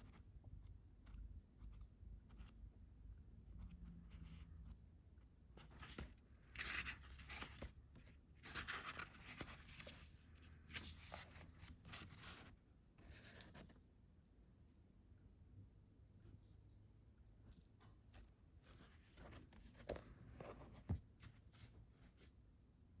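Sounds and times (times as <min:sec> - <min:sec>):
soft paper rustling: 0:05.6 - 0:14.0, 0:17.5 - 0:22.6.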